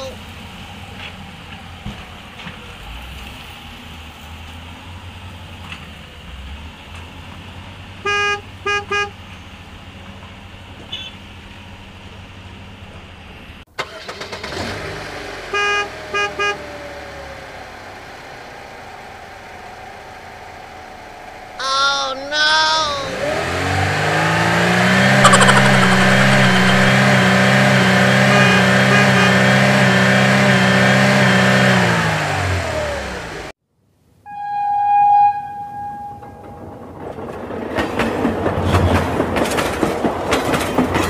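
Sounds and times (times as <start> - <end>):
vehicle horn honking: 8.1 - 9.2, 15.5 - 16.6, 25.1 - 31.4.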